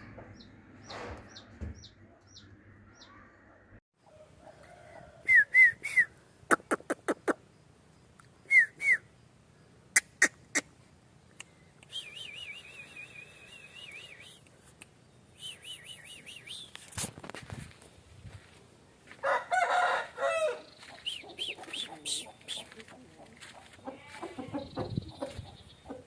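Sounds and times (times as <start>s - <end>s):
bird chirps: 0.0s - 3.6s, 10.0s - 16.8s, 20.6s - 22.8s.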